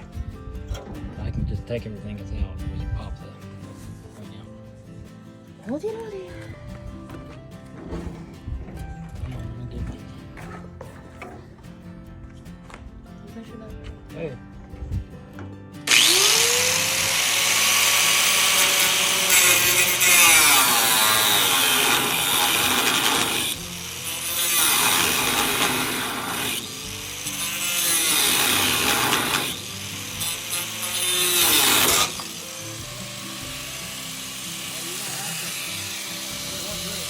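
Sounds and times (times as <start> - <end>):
power tool cutting metal nut: 15.9 - 37.0.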